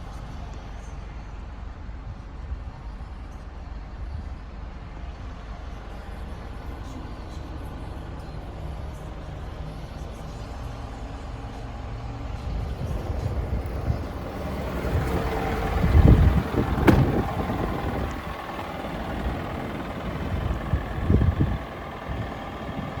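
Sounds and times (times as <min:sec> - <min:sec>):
truck engine rumbling: 0:07.1 - 0:23.0.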